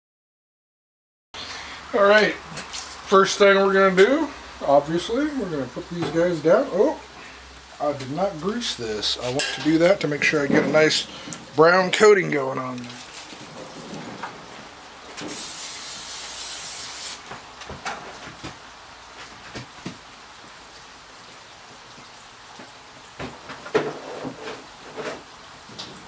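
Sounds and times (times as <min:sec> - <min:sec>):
aerosol cooking spray hissing: 0:15.3 - 0:17.2.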